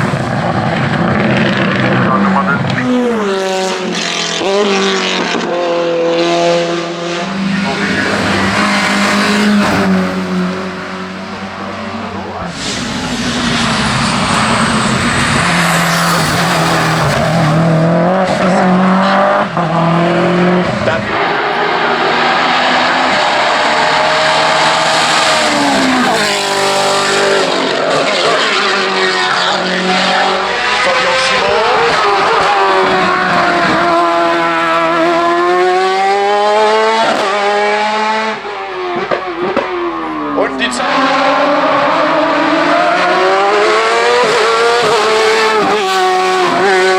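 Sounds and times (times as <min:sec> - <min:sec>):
racing car engine under load: 0:00.0 - 0:46.9
race car engine running flat out: 0:12.4 - 0:18.2.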